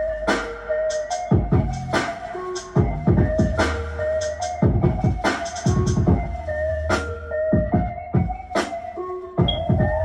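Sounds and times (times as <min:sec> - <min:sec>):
hi-hat hisses: 0:00.2 - 0:02.8, 0:05.2 - 0:06.1
deep kick drums: 0:01.3 - 0:01.9, 0:02.8 - 0:03.6, 0:04.6 - 0:06.4, 0:09.4 - 0:10.0
held synth tones: 0:09.4 - 0:10.0.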